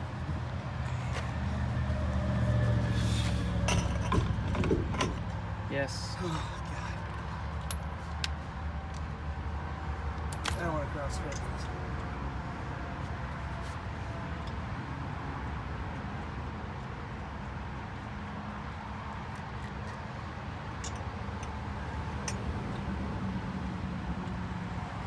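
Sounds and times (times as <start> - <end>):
low vehicle rumble: 0.0 - 10.1.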